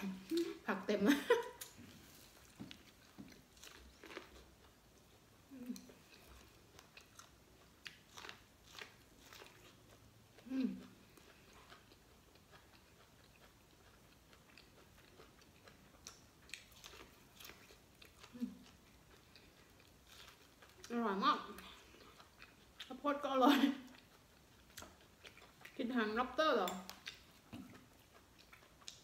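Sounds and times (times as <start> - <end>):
corn being bitten and chewed: 2.0 - 21.0.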